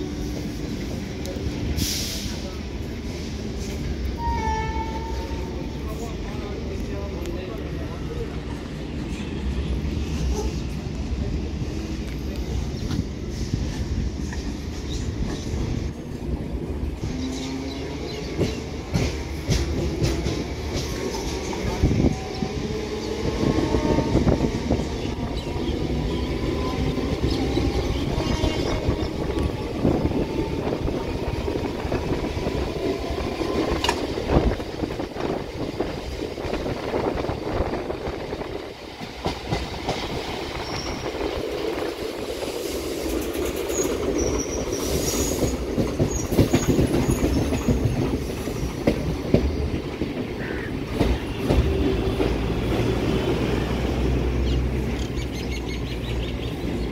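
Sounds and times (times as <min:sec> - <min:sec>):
train wheels clattering over rail joints: 0:17.2 - 0:22.3, 0:38.9 - 0:53.1
high wheel squeal: 0:43.7 - 0:47.8.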